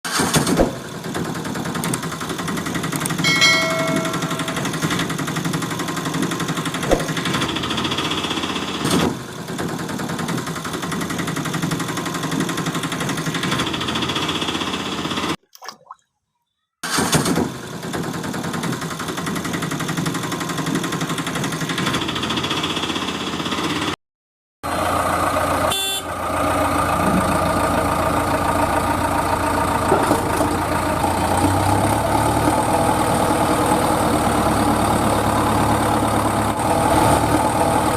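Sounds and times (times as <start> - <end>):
vehicle engine running: 0.1 - 15.4, 24.7 - 37.9.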